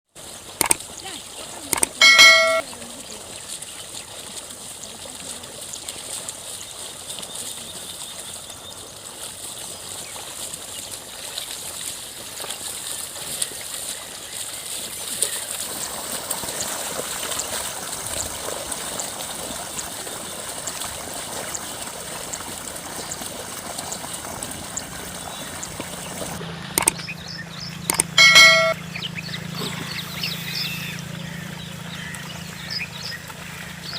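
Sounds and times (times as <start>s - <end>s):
water and mud trickling and sloshing: 0.1s - 33.9s
brief ringing tone: 1.8s - 2.6s, 27.9s - 28.8s.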